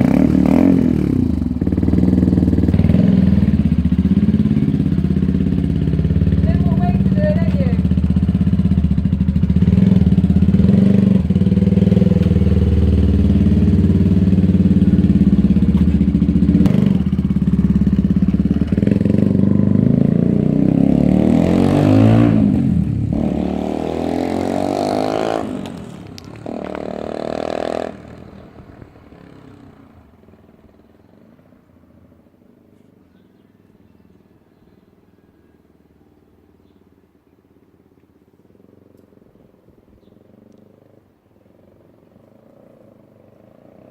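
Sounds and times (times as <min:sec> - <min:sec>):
motorcycle engine revving: 0:00.0 - 0:31.7.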